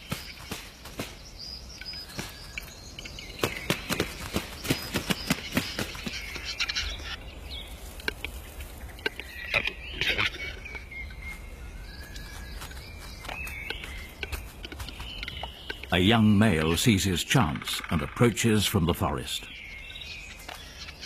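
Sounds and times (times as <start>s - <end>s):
faint bird calls: 0.0s - 18.4s
sharp wing claps: 3.4s - 6.2s
wing flaps: 3.4s - 6.4s.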